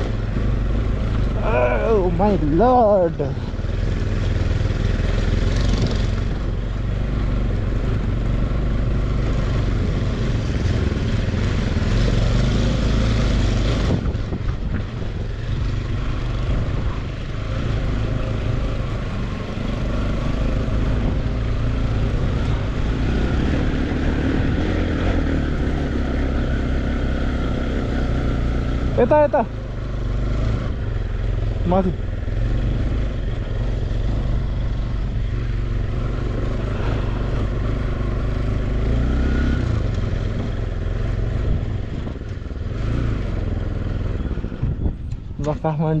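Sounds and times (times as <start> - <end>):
motorcycle engine running: 0.0 - 46.0
wind on microphone: 12.0 - 17.0, 41.3 - 45.4.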